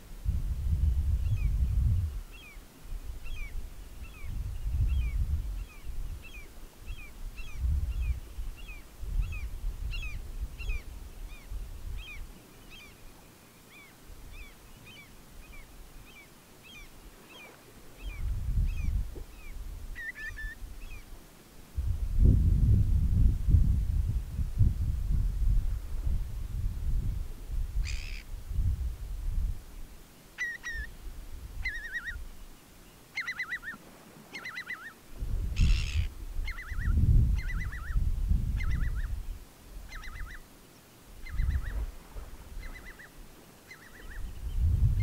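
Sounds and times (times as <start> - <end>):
wind rumble on microphone: 0.0 - 12.9, 16.8 - 30.0, 30.7 - 32.5, 35.1 - 40.4, 41.1 - 45.0
bird calling: 5.0 - 21.1, 27.8 - 28.3, 30.4 - 31.0, 31.6 - 32.2, 33.0 - 35.0, 35.6 - 38.0, 38.6 - 39.2, 39.9 - 40.5, 41.2 - 41.9, 42.6 - 44.5.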